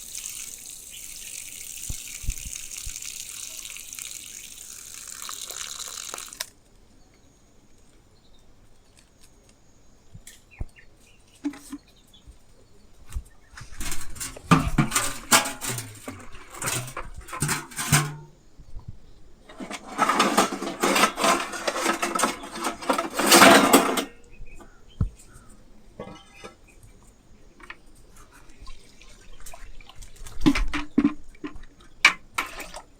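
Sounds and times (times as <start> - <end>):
stream of water: 0.0 - 6.6, 28.2 - 32.9
clattering and scraping: 13.6 - 18.4, 19.5 - 25.4, 26.0 - 26.8, 30.3 - 32.8.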